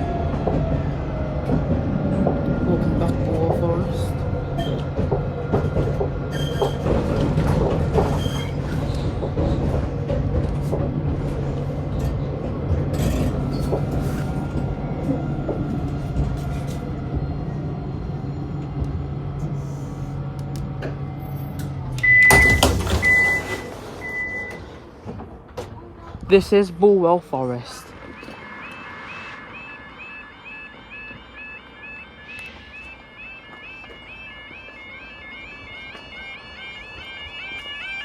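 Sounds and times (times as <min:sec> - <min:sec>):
tram running hum: 0:00.0 - 0:22.4, 0:23.1 - 0:38.0
tram doors opening: 0:00.0 - 0:38.0
short high warning beeps: 0:28.0 - 0:37.6.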